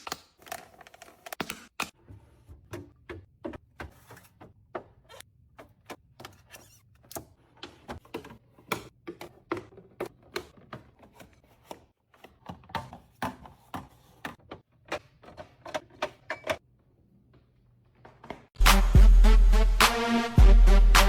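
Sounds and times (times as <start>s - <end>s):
items clicking and knocking: 0.0s - 16.7s.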